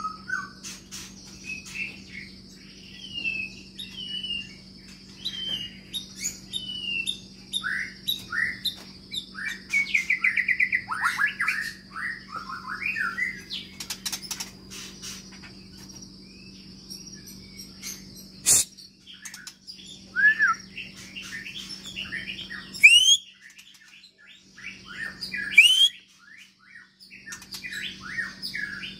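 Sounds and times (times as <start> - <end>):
bird singing whistled phrases: 18.4 - 19.4, 20.0 - 20.8, 22.1 - 23.6, 24.8 - 26.5.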